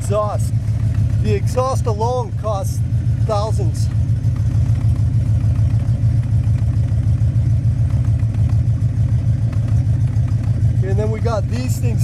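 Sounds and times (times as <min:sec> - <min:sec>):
car engine idling burble: 0:00.0 - 0:12.0.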